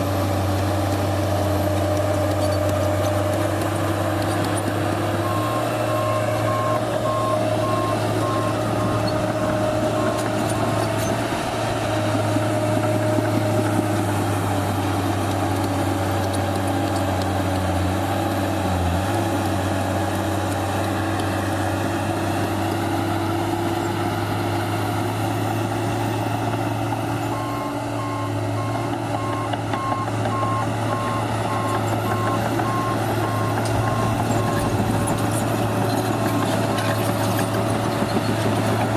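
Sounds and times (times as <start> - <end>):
bulldozer diesel engine running: 0.0 - 38.9
reversing alarm beeping: 5.2 - 11.2, 27.3 - 37.4.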